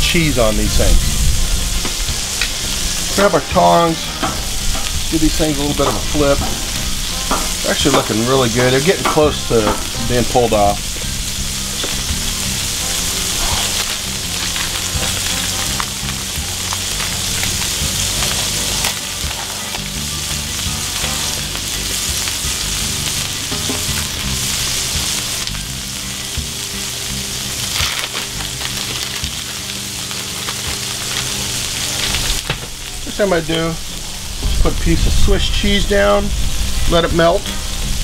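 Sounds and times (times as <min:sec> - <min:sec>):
meat and onions sizzling on griddle: 0:00.0 - 0:38.0.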